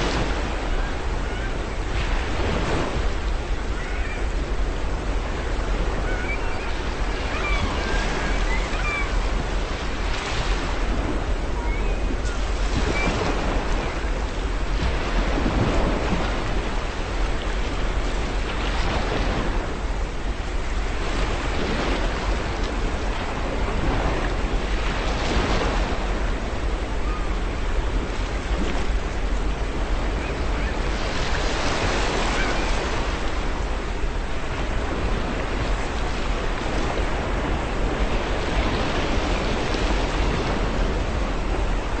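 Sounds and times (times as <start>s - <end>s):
ocean waves breaking on shore: 0.0s - 42.0s
faint seagull cries: 0.6s - 1.8s, 3.7s - 4.4s, 5.8s - 9.5s, 11.5s - 14.0s, 31.9s - 33.1s.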